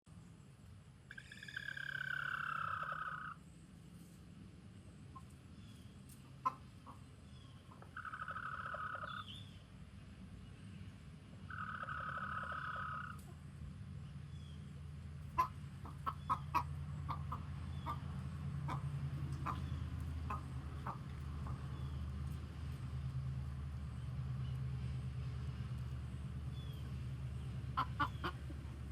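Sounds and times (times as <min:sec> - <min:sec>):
chicken warning call: 0:01.1 - 0:03.4, 0:06.3 - 0:09.5, 0:11.5 - 0:13.4, 0:15.2 - 0:22.0, 0:26.6 - 0:28.9.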